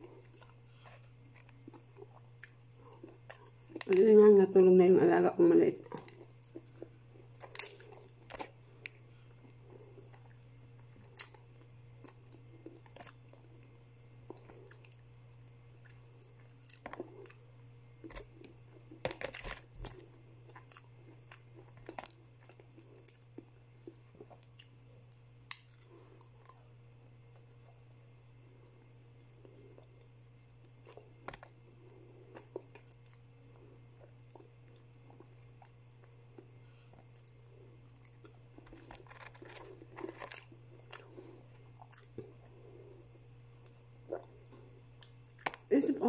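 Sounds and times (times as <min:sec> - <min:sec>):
steady low hum: 0:00.0 - 0:46.0
person crunching crispy food: 0:05.9 - 0:09.0, 0:18.0 - 0:23.3, 0:37.0 - 0:43.2, 0:45.0 - 0:45.7.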